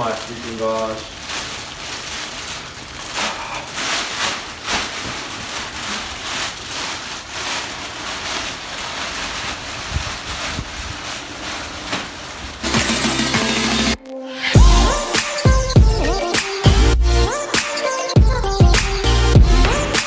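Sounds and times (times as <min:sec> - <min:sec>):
packaging rustling and crinkling: 0:00.0 - 0:13.1.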